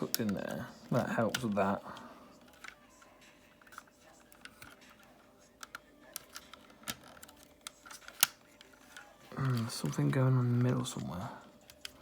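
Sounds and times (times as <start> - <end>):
plastic toy parts clicking: 2.4 - 2.8, 3.6 - 5.0, 5.6 - 10.0.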